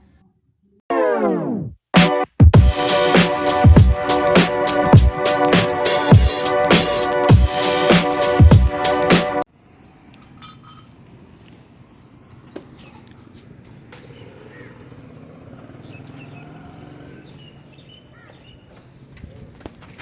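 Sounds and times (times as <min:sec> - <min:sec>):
outdoor background noise: 0:09.5 - 0:20.0.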